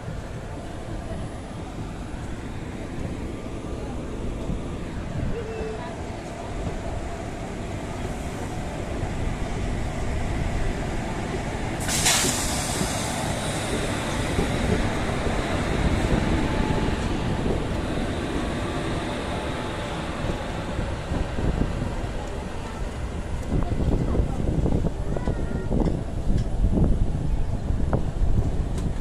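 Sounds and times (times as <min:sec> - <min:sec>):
train rumbling on track: 0:00.0 - 0:29.0
loud hiss: 0:11.8 - 0:13.7.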